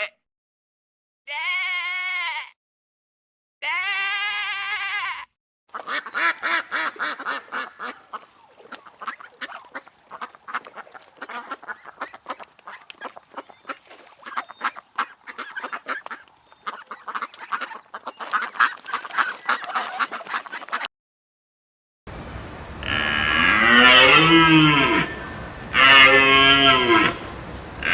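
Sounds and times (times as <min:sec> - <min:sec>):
sheep bleating: 0:01.3 - 0:02.6, 0:03.6 - 0:05.3, 0:22.8 - 0:27.9
ducks quacking: 0:05.7 - 0:20.9, 0:22.4 - 0:27.9.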